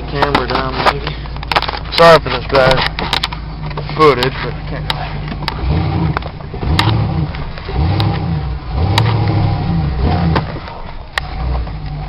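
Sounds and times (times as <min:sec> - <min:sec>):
truck engine revving: 0:04.6 - 0:12.0.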